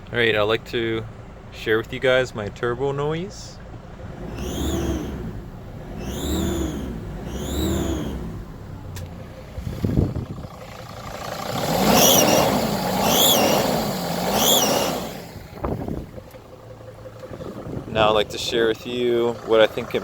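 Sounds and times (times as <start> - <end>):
diesel engine: 0.0 - 20.0
whistling chirp of exhaust leak: 6.0 - 8.3, 11.9 - 15.2.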